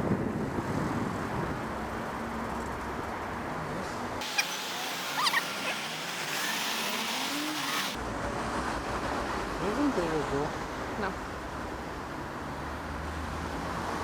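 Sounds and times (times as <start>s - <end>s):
wind noise: 0.0s - 1.9s
traffic noise: 0.0s - 14.0s
squeaky chirps: 4.2s - 8.0s.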